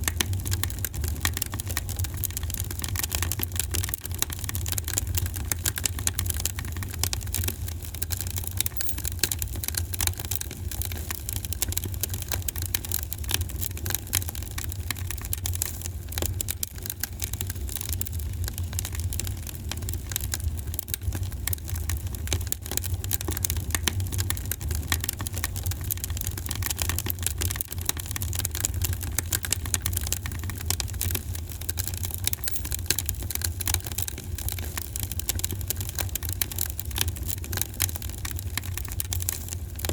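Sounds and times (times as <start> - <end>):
wood fire crackling: 0.0 - 39.9
low fire rumble: 33.2 - 39.9.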